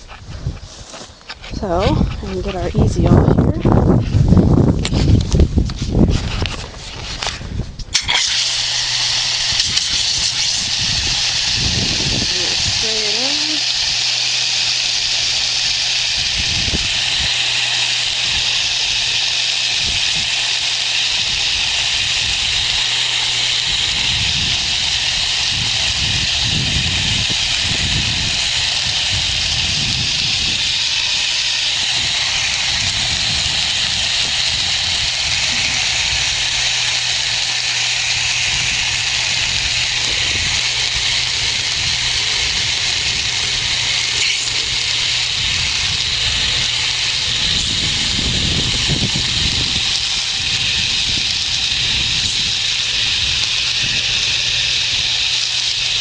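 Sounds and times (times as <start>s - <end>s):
hose sprayer hissing: 0.0s - 56.0s.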